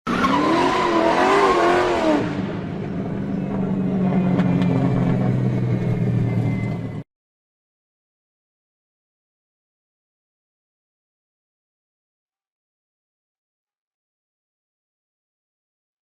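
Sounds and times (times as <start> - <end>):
car engine revving: 0.1 - 7.0.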